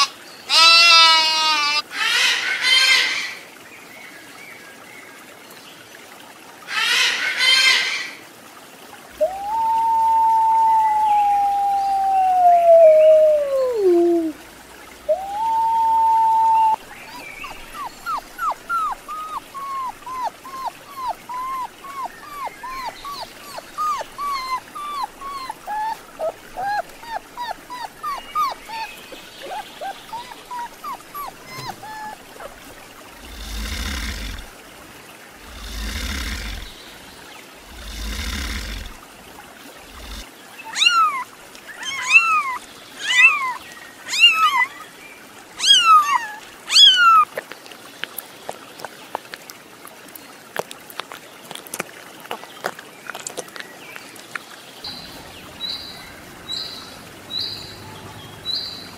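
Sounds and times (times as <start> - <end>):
puppies whimpering: 15.1 - 32.7, 40.8 - 41.2, 41.8 - 44.8, 45.6 - 47.3
crocodile hissing: 33.2 - 34.6, 35.4 - 37.0, 37.6 - 39.1, 39.8 - 40.3.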